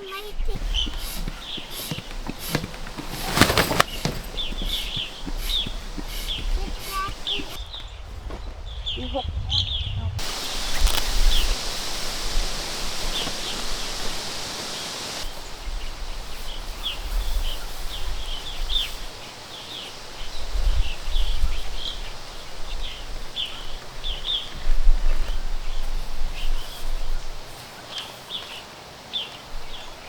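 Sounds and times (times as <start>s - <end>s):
steady high hiss: 0.0s - 7.6s, 10.2s - 24.4s
low uneven rumble: 0.0s - 15.2s
birds chirping: 0.0s - 30.0s.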